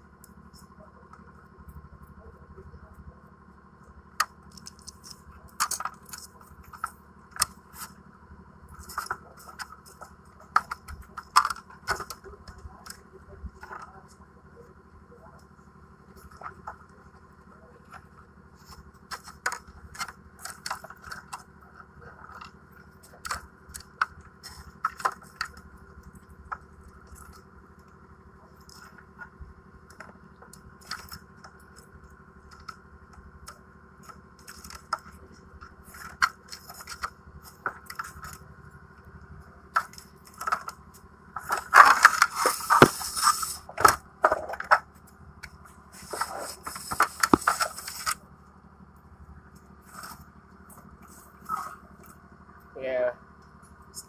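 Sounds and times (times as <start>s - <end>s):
steady background hum: 33.7s - 54.0s
tools on metal clicking and scraping: 41.4s - 44.0s, 46.0s - 48.2s.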